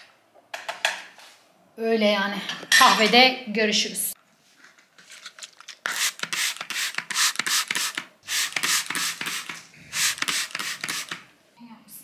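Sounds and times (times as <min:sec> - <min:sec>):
surface being scrubbed: 0:05.9 - 0:11.2.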